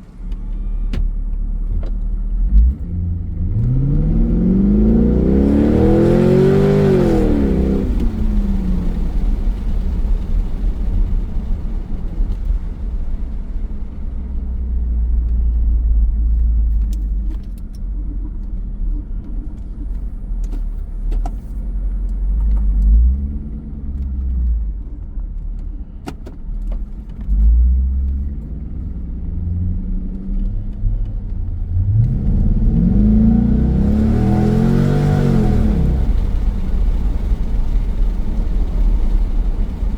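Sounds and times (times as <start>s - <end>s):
low engine rumble: 0.0s - 39.9s
car engine revving: 1.6s - 12.6s, 27.3s - 39.9s.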